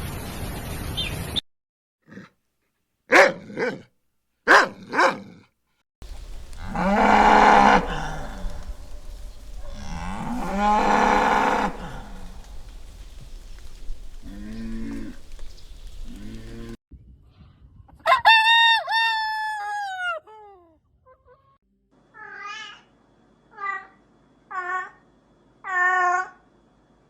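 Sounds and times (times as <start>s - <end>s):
cow mooing: 6.1s - 16.8s.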